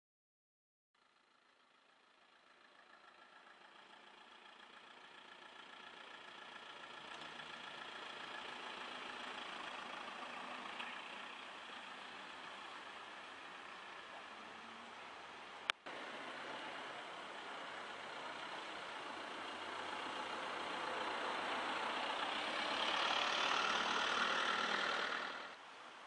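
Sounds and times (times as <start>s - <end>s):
van engine passing by: 1.0s - 26.0s.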